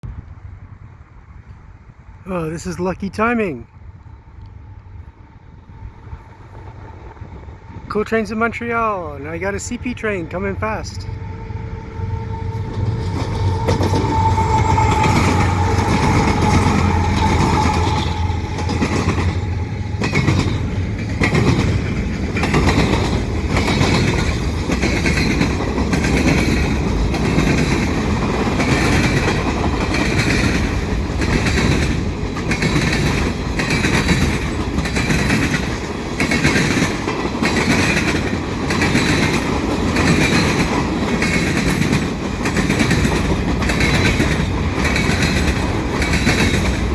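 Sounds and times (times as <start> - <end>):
locomotives passing: 0.1 - 46.9
wheels clacking over rail joints: 12.0 - 46.9.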